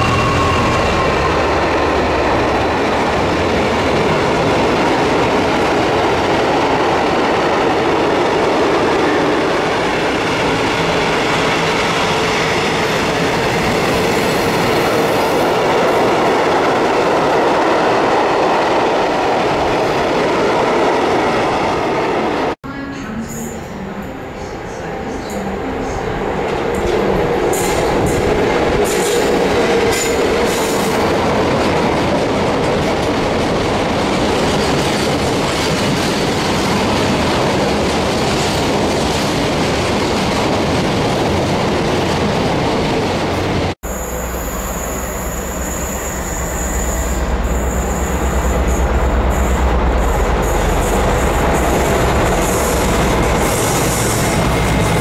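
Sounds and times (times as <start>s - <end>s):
squealing tone: 0.0s - 1.6s
freight train wheel noise: 0.0s - 55.0s.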